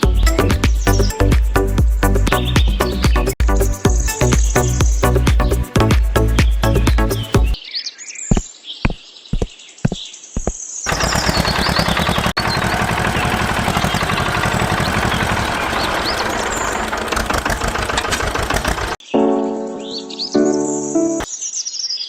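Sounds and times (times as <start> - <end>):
small engine running: 10.9 - 19.0.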